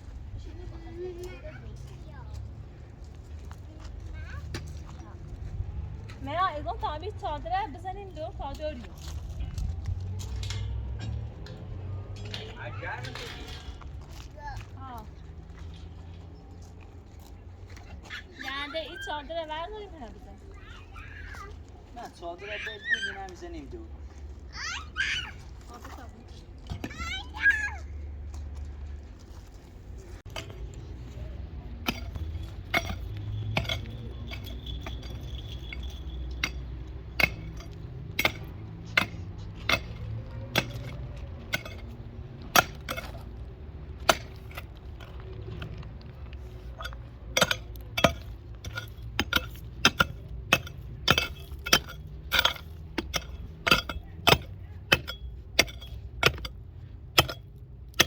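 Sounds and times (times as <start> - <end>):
sharp glass or metal clinks: 31.9 - 38.4.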